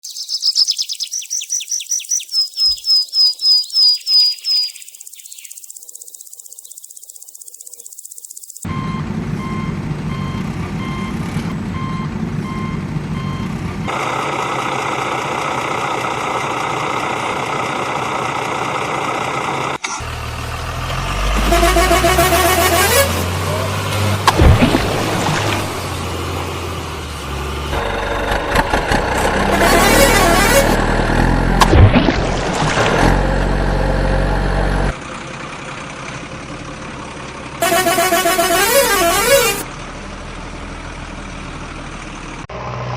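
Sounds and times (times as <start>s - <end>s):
high chirps: 0.0s - 9.6s
vehicle reversing beeper: 8.6s - 13.6s
steady engine noise: 8.6s - 42.9s.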